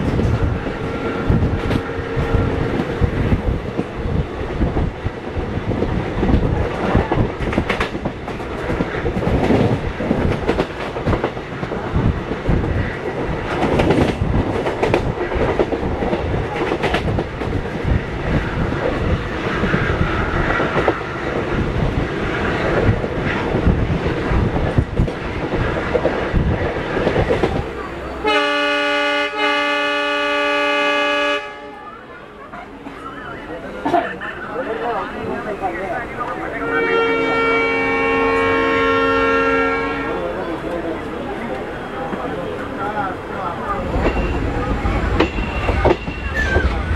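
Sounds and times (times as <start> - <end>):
train rumble: 0.0 - 46.9
train wheels clattering over rail joints: 5.6 - 27.7
train horn steady tone: 28.2 - 32.0, 36.5 - 40.2.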